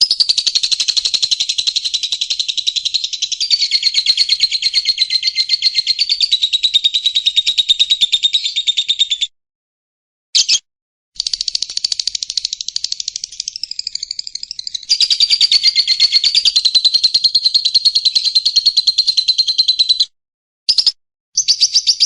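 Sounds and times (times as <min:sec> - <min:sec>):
bird fast pulsed trill: 0:00.0 - 0:07.7.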